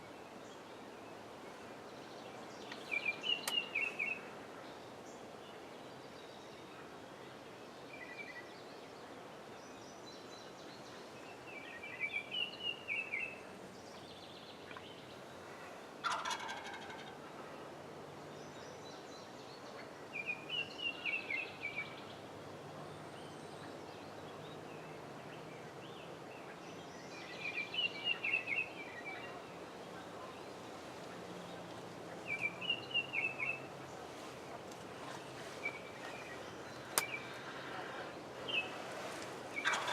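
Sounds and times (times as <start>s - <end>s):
turkey gobbling: 16.0s - 17.4s, 38.7s - 39.9s.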